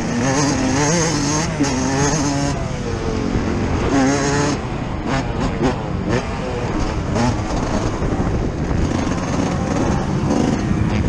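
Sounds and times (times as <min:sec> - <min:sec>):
two-stroke motocross engine revving: 0:00.0 - 0:11.0.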